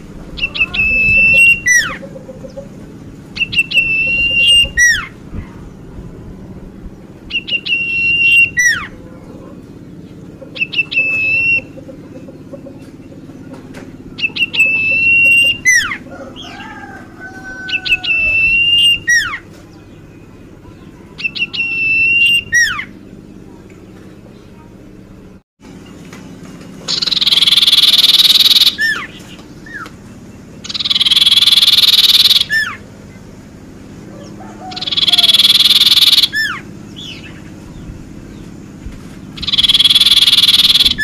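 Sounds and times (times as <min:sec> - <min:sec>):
lower warbling: 0:00.0 - 0:19.4
steady low hum: 0:00.0 - 0:41.0
bird whistled song: 0:00.4 - 0:02.7, 0:03.4 - 0:05.2, 0:07.3 - 0:09.0, 0:10.5 - 0:16.6, 0:17.6 - 0:23.0, 0:26.9 - 0:29.9, 0:30.6 - 0:32.8, 0:34.2 - 0:38.5, 0:39.4 - 0:41.0.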